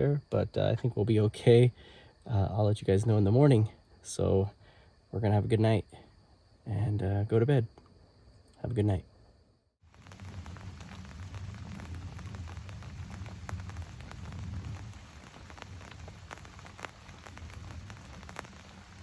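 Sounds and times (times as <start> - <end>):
raindrops ticking: 9.8 - 19.0
steady rain falling: 9.8 - 19.0.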